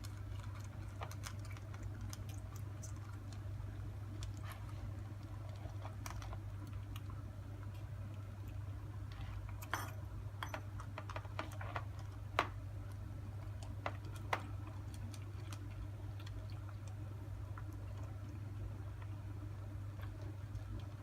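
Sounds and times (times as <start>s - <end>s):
kitten feeding clicks: 0.0s - 4.4s, 10.6s - 19.2s.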